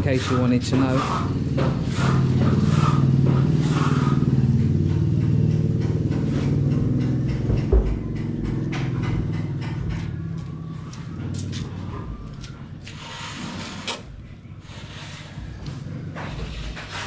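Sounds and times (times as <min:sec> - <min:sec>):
motor engine running: 0:00.2 - 0:12.5
single knock: 0:07.4 - 0:08.6.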